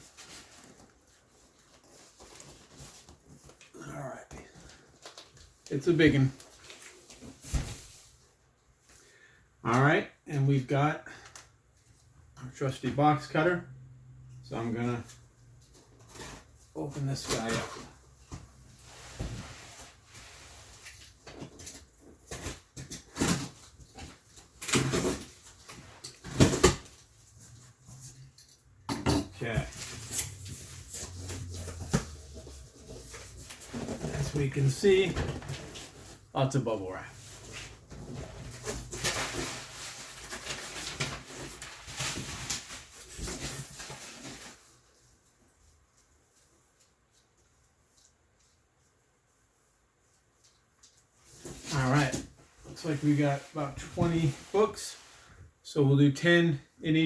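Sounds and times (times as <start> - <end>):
bubble wrap crinkling and rustling: 0.0 - 8.2, 29.4 - 47.3.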